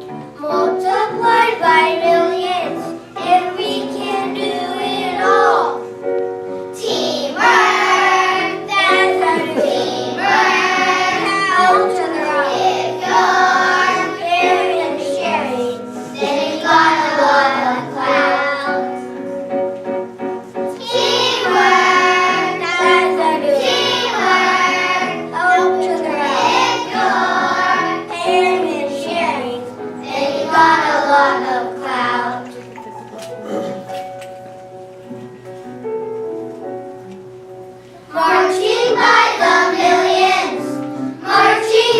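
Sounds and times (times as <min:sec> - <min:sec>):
backing music: 0:00.0 - 0:41.9
children singing: 0:00.4 - 0:05.9, 0:06.8 - 0:19.0, 0:20.7 - 0:32.6, 0:38.1 - 0:41.9.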